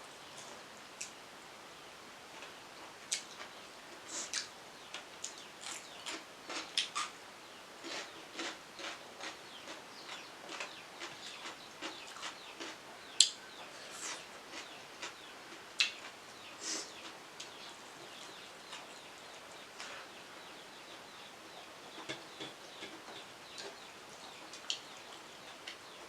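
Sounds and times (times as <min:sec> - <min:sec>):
crisp chewing crunches: 0:07.8 - 0:13.4.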